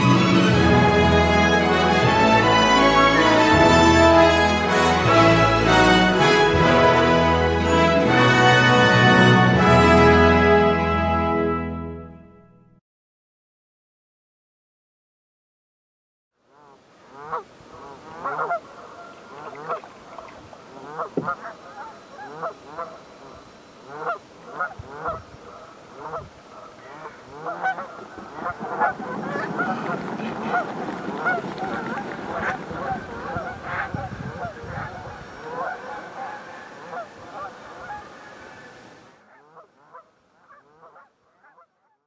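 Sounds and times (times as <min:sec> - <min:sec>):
geese honking: 0:00.0 - 0:10.7, 0:16.5 - 0:42.0
low rushing of wings: 0:17.1 - 0:39.1.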